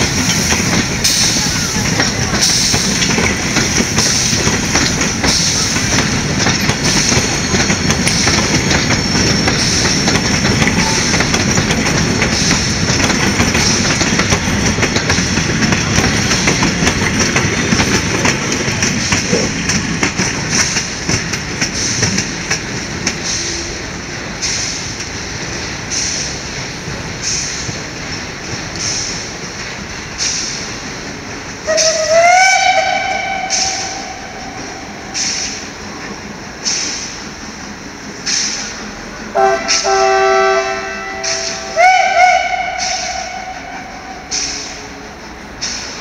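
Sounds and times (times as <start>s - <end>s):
train wheels clattering over rail joints: 0.0s - 40.2s, 41.0s - 46.0s.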